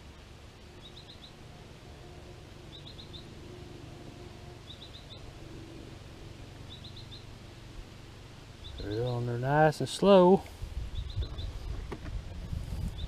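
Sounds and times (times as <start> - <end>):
low background rumble: 0.0 - 13.0
small bird chirping: 0.7 - 1.4, 2.7 - 3.4, 4.6 - 5.3, 6.6 - 7.4, 8.6 - 9.3, 10.9 - 11.7.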